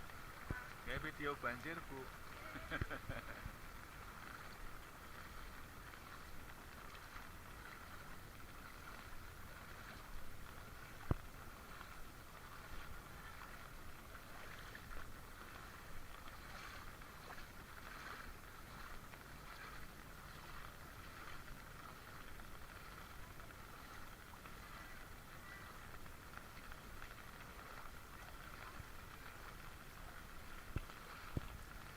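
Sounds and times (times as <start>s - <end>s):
floodwater sloshing and running: 0.0s - 31.9s.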